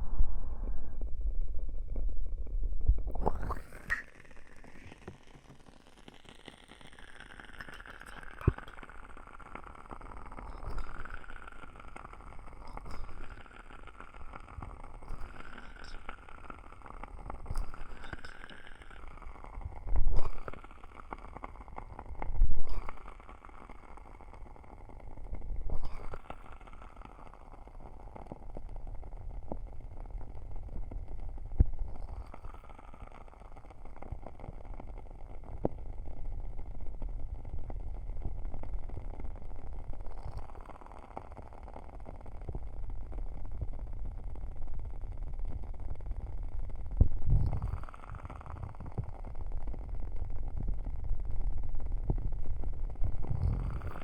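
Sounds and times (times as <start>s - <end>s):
muffled rumbling ear cupping: 0.0s - 5.6s, 37.9s - 54.0s
candle crackling: 3.0s - 54.0s.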